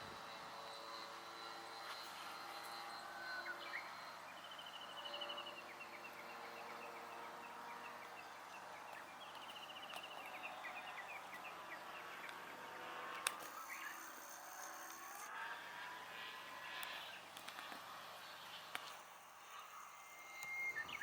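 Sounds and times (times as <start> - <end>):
model airplane motor: 0.0 - 21.0
open field ambience: 0.0 - 21.0
birds chirping: 2.5 - 15.3, 16.0 - 21.0
click: 13.1 - 13.6.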